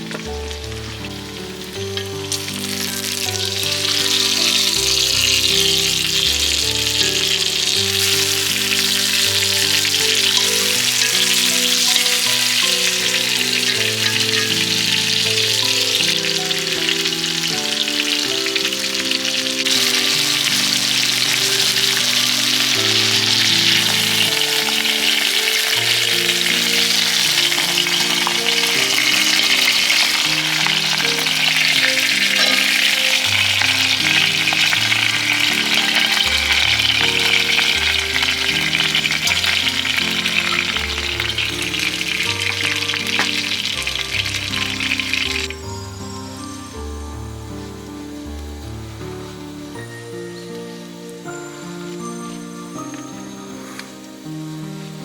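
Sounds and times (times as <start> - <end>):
background music with held notes: 0.0 - 55.0
food sizzling in hot pan: 0.0 - 55.0.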